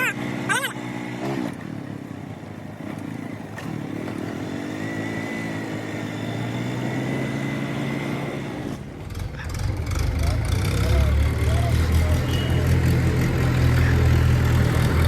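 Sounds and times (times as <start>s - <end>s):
tractor diesel engine running: 4.9s - 15.0s.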